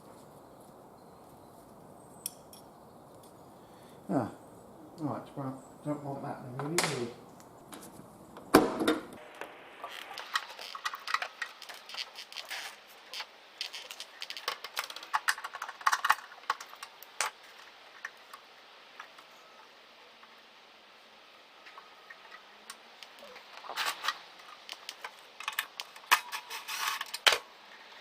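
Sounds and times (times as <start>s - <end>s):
metal parts clicking and rattling: 9.8s - 18.2s, 23.1s - 27.4s.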